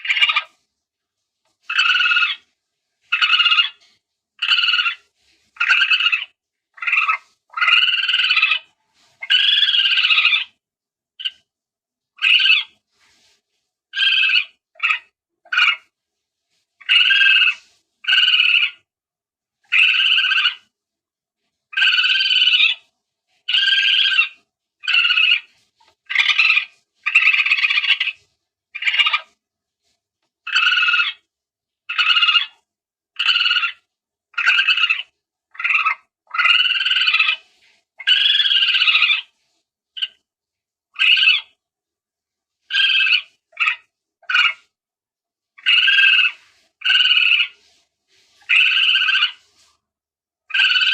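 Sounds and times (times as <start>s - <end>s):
civet calls: 0.0s - 0.6s, 1.6s - 2.5s, 3.1s - 3.8s, 4.4s - 10.6s, 12.2s - 12.8s, 13.9s - 15.9s, 16.8s - 18.8s, 19.7s - 20.7s, 21.7s - 22.9s, 23.5s - 28.2s, 28.8s - 29.4s, 30.5s - 31.2s, 31.9s - 32.6s, 33.2s - 37.4s, 38.0s - 39.3s, 40.0s - 40.2s, 41.0s - 41.6s, 42.7s - 44.7s, 45.6s - 47.6s, 48.4s - 49.4s, 50.5s - 50.9s.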